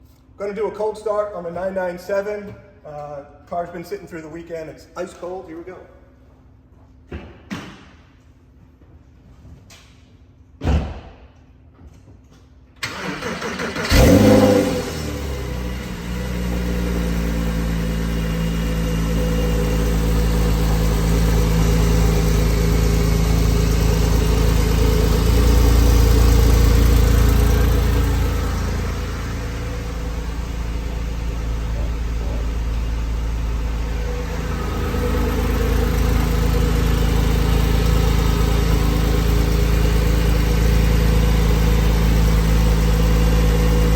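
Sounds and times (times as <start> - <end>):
thump: 7.1 - 8.0, 10.6 - 11.2
starter motor cranking: 12.8 - 15.1
car engine revving and idling: 12.8 - 43.9.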